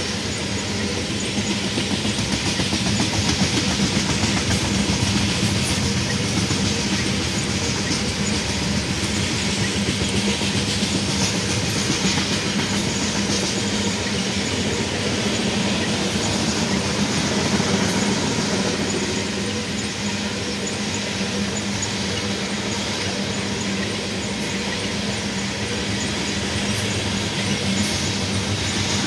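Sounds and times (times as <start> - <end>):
train wheels on rails: 0.0 - 29.0.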